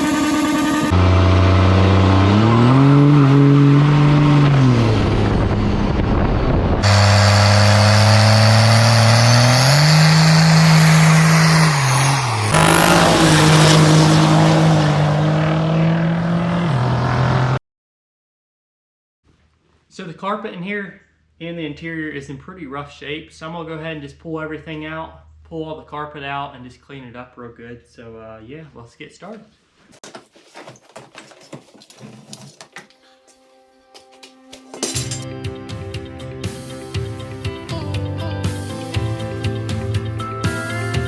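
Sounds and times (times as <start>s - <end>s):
motorcycle engine revving: 0.0s - 6.1s, 6.8s - 17.6s.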